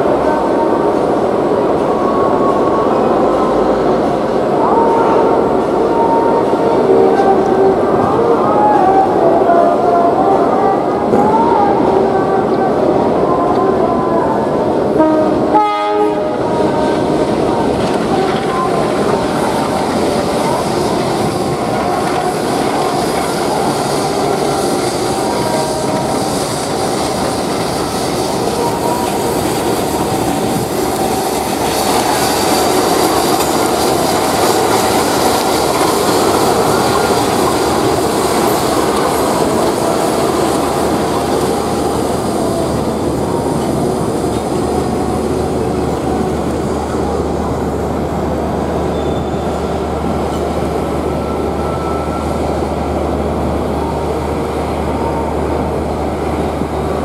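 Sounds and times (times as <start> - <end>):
train running past on rails: 0.0 - 57.0
train horn: 4.6 - 8.9, 14.9 - 19.6.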